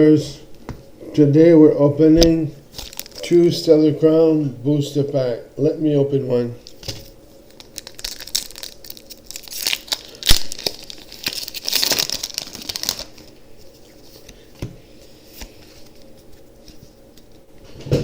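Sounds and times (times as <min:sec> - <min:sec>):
foil wrapper crinkling: 0:02.7 - 0:03.3, 0:06.8 - 0:14.5
wrapper tearing: 0:02.7 - 0:03.3, 0:07.5 - 0:14.3.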